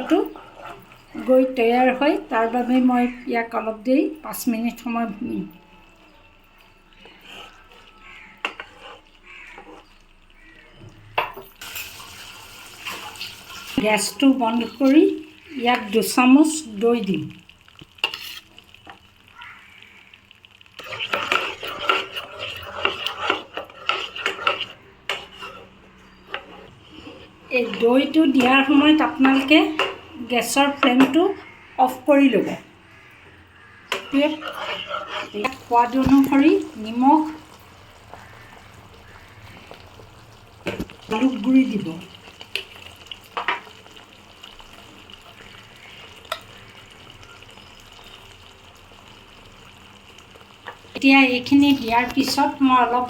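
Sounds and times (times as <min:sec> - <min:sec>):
metal spoon scraping a pot: 0:00.0 - 0:02.9, 0:06.9 - 0:10.0, 0:11.2 - 0:13.8, 0:17.9 - 0:19.0, 0:20.8 - 0:31.5, 0:33.8 - 0:39.7, 0:46.2 - 0:46.5
faint sizzling in a pan: 0:00.0 - 0:53.0.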